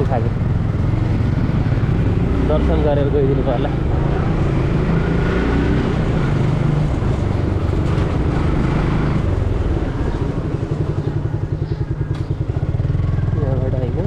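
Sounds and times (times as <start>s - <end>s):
motorcycle engine running: 0.0s - 14.0s
road and wind noise: 0.0s - 14.0s.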